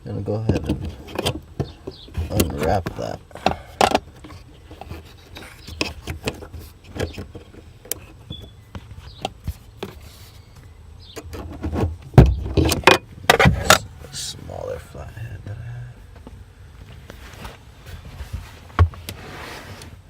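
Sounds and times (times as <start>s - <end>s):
hand tools clicking and scraping: 0.6s - 10.3s.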